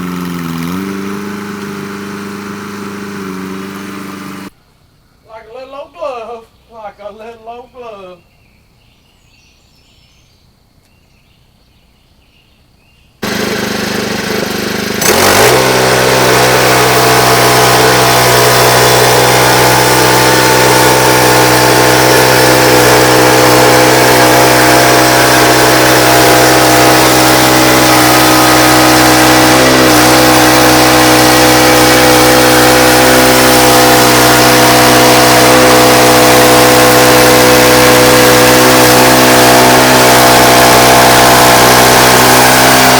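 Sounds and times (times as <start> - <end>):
engine starting and revving: 0.0 - 4.5, 13.2 - 42.9.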